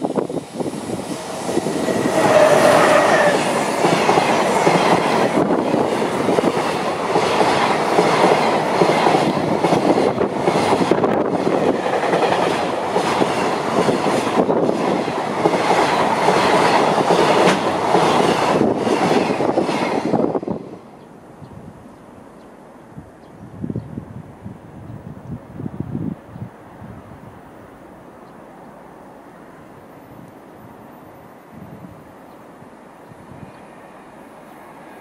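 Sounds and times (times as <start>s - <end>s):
locomotive steady tone: 0.0s - 7.4s
train wheel and rail noise: 0.0s - 35.0s.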